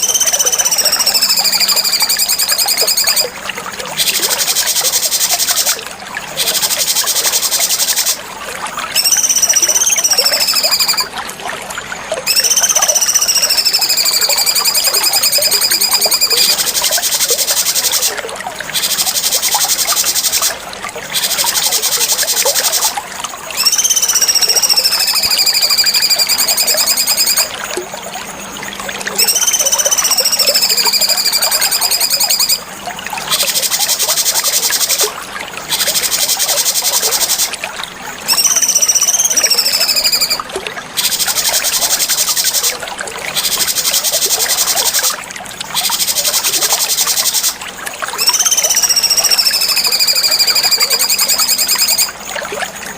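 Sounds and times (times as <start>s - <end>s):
bird whistling notes: 0.0s - 3.3s, 9.0s - 11.1s, 12.3s - 23.0s, 23.6s - 27.5s, 29.2s - 32.6s, 38.3s - 40.4s, 48.2s - 52.2s
rapid high-pitched buzzing trill: 0.0s - 3.3s, 9.0s - 11.1s, 12.3s - 18.1s, 23.6s - 27.5s, 29.2s - 32.6s, 48.2s - 52.2s.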